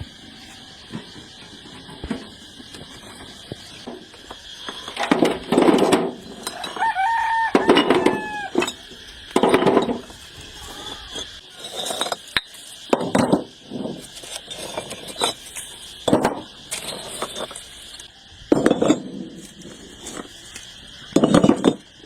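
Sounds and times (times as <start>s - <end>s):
hard objects clinking and knocking: 3.3s - 10.2s, 11.0s - 20.4s, 21.0s - 22.0s.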